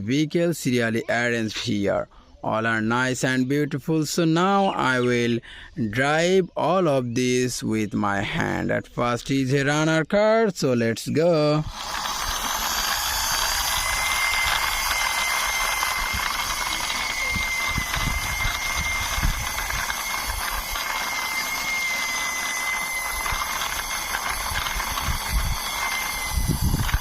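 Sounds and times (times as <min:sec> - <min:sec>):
toy car whirring: 0:11.6 - 0:27.0.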